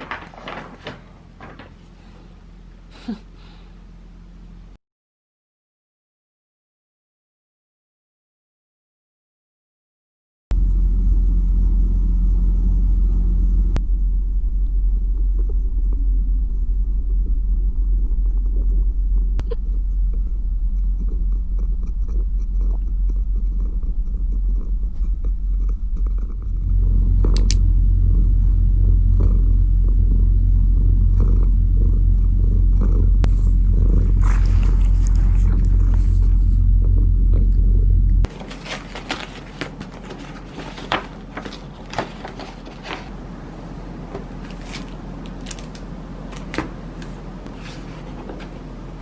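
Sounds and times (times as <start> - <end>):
cat purring: 10.6 - 38.4.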